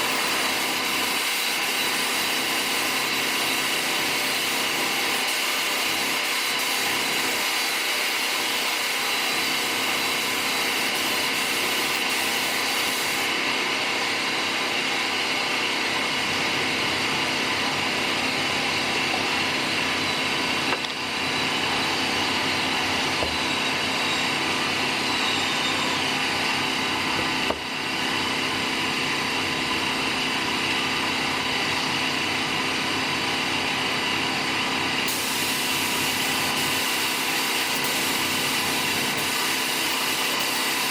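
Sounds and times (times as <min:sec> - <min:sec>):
power tool whining: 0:00.0 - 0:15.6, 0:17.1 - 0:30.2, 0:34.3 - 0:40.9.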